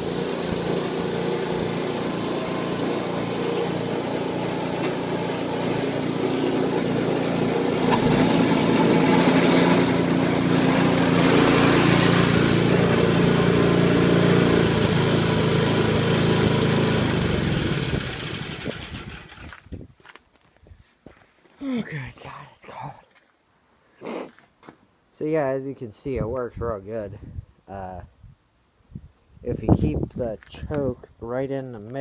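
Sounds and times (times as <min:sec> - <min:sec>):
small gasoline engine running: 0:00.0 - 0:19.7.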